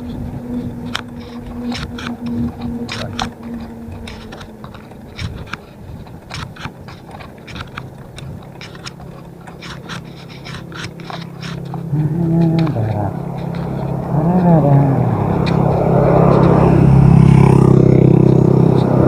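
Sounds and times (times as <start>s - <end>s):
low rumble: 0.0s - 19.0s
sharp clicks and rattles: 0.0s - 19.0s.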